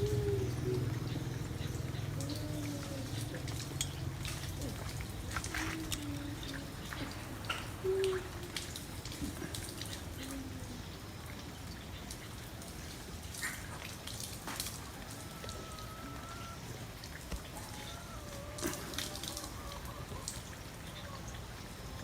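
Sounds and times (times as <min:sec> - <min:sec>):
dove cooing: 0:00.0 - 0:10.8.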